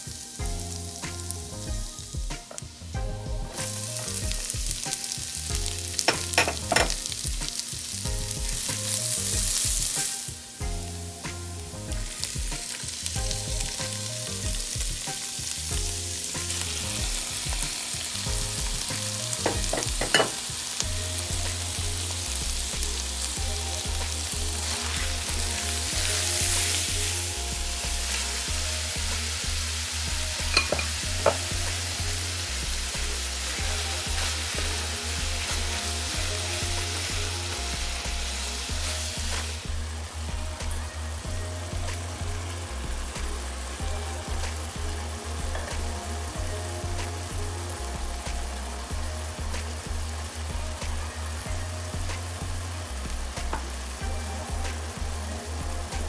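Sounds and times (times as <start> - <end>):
food sizzling in oil: 0.0 - 56.0
utensil knocking against pan: 6.1 - 7.0, 19.4 - 20.4, 30.5 - 31.4.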